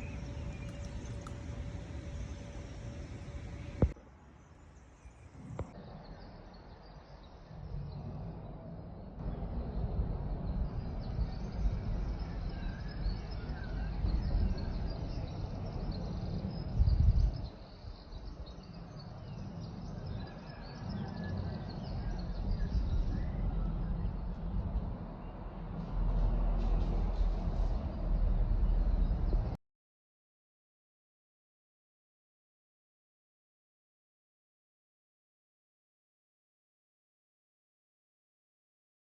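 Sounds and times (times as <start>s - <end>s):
low rumble: 0.0s - 4.0s, 21.9s - 29.6s
small birds chirping: 0.0s - 8.1s.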